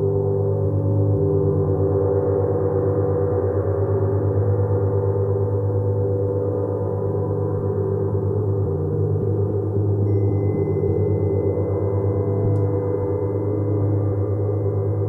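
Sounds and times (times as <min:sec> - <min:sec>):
gong with deep hum: 0:00.0 - 0:15.0
thin high pure tone: 0:10.0 - 0:15.0.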